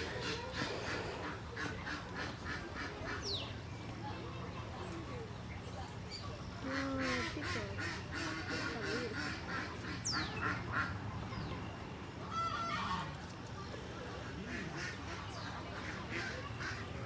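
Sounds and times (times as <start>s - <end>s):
ducks quacking: 0.0s - 3.6s, 6.6s - 11.4s, 14.2s - 17.0s.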